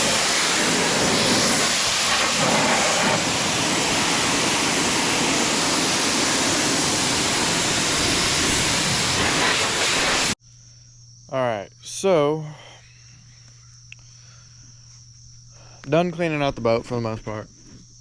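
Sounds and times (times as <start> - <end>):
pressure washer spraying water: 0.0 - 10.4.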